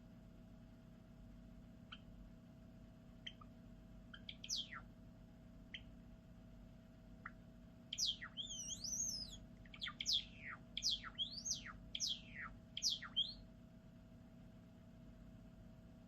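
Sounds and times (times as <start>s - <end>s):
sparrow chirping song: 3.2s - 3.5s, 4.1s - 4.9s, 7.2s - 13.4s.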